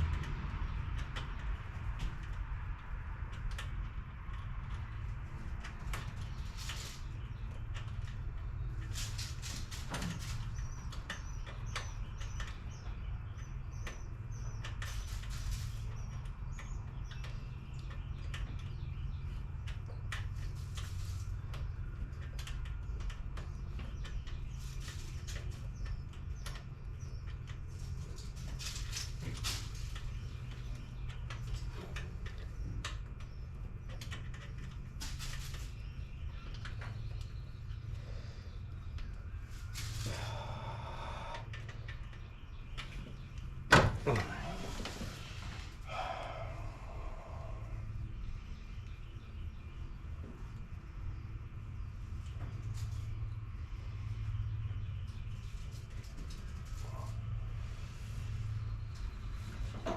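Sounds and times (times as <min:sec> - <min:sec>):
clinks and knocks of engine parts: 0:00.0 - 0:38.0, 0:58.5 - 0:59.9
bird chirping: 0:04.3 - 0:59.9
low rumble: 0:44.1 - 0:52.3.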